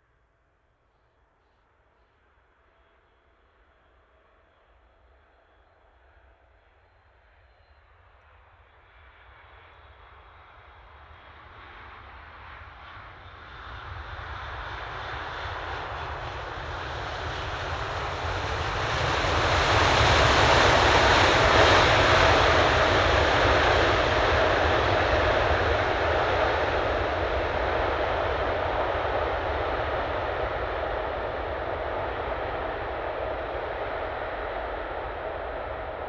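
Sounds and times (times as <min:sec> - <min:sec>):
jet engine whine: 0:02.1 - 0:36.0
jet engines approaching: 0:08.5 - 0:36.0.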